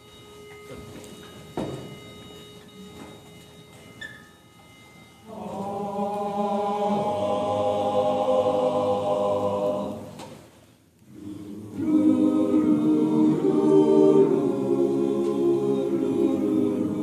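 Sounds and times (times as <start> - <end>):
voices singing held chord: 5.2 - 10.3, 11.0 - 17.0.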